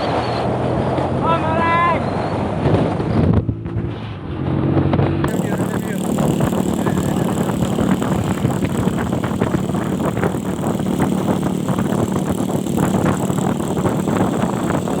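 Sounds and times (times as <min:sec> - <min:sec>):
exhaust popping: 0:02.6 - 0:15.0
motorcycle engine running: 0:03.1 - 0:15.0.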